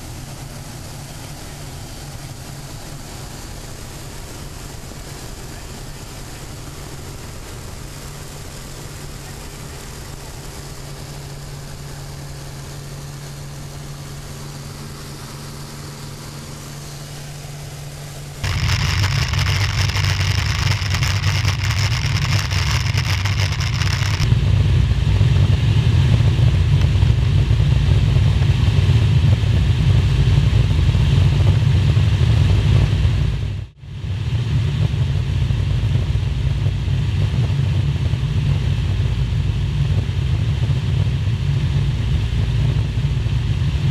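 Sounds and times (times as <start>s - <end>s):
piston aircraft engine drone: 0.0s - 43.9s
rough loud engine run: 0.0s - 43.9s
rushing noise: 18.4s - 29.0s.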